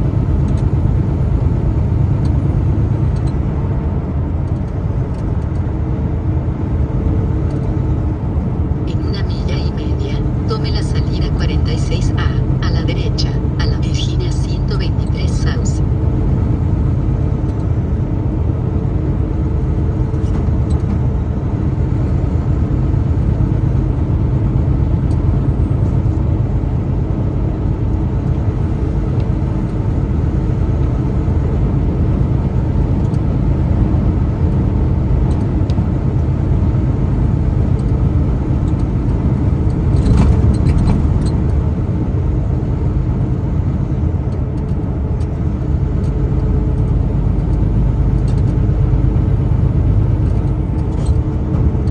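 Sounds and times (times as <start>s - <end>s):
road noise: 0.0s - 51.9s
truck engine rumble: 0.0s - 51.9s.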